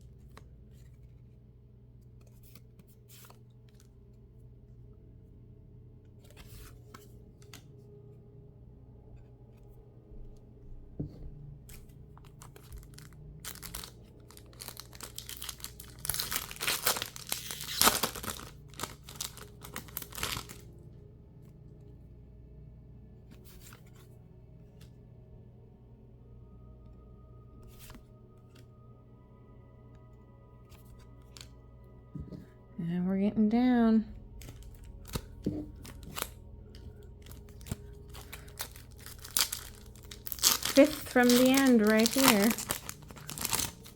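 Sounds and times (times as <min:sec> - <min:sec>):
trading cards clicking and rustling: 0:11.7 - 0:20.6, 0:34.4 - 0:43.9
foil wrapper tearing and crinkling: 0:12.2 - 0:20.7, 0:34.4 - 0:43.9.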